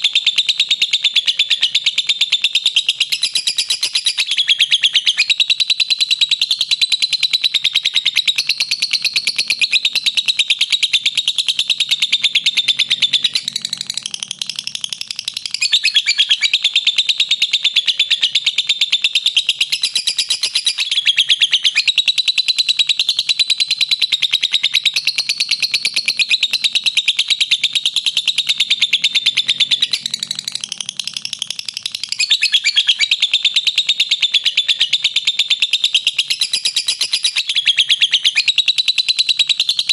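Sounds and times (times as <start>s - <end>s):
bird shrill chattering: 15.4s - 16.7s, 31.6s - 33.4s.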